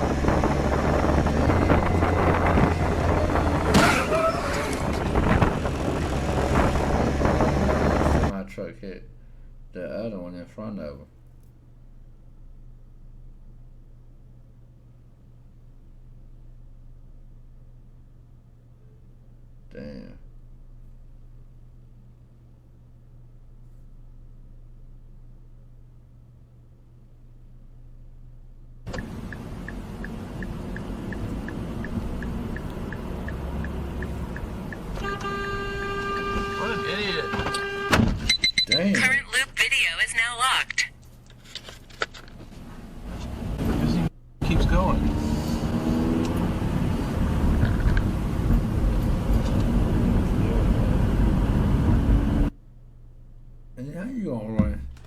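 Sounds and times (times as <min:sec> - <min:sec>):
vehicle road noise: 0:00.0 - 0:08.3, 0:28.9 - 0:40.5, 0:41.3 - 0:52.6
light even ticking: 0:28.9 - 0:35.0.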